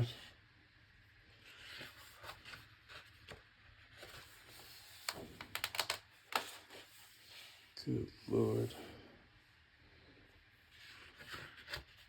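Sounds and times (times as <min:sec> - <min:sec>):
book pages tapping and ticking: 0:05.0 - 0:06.7.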